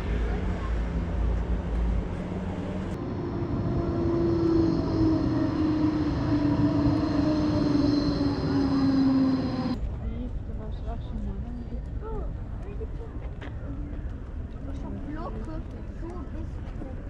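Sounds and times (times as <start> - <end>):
passing vehicle droning hum: 0.0 - 9.8
faint high whine: 3.0 - 9.8.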